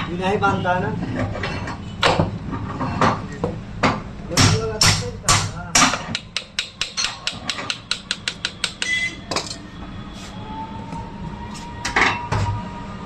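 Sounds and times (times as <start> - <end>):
hammer tapping on metal: 4.4 - 9.0.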